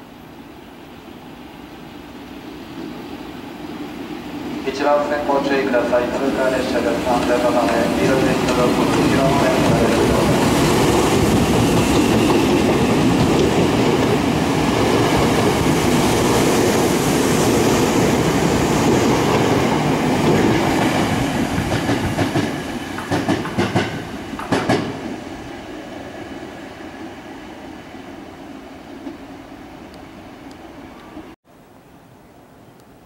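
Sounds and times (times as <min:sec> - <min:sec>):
train wheels rumbling on rails: 0:04.2 - 0:25.5.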